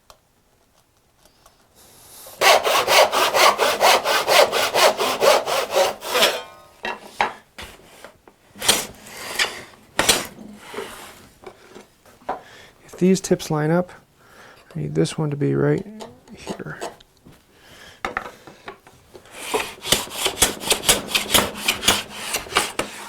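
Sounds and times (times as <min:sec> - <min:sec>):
hand saw cutting wood: 0:02.4 - 0:06.5, 0:08.6 - 0:11.1, 0:19.3 - 0:23.0.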